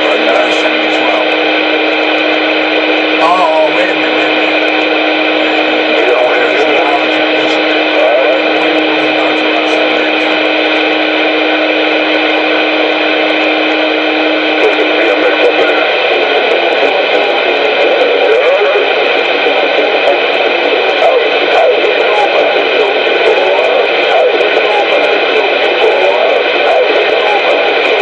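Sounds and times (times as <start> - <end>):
low hum-like tone: 0.0 - 17.2
noisy radio transmission: 0.0 - 28.0
steady whining tones: 0.0 - 28.0.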